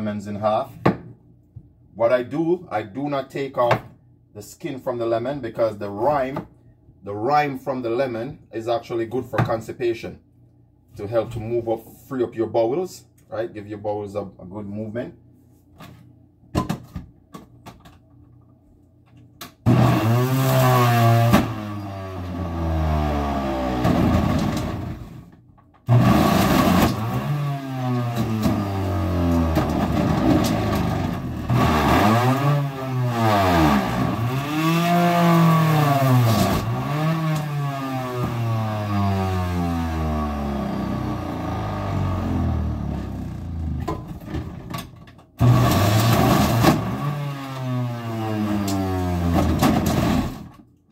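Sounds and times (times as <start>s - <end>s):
electric juicer motor running: 19.7s - 22.6s, 25.9s - 31.1s.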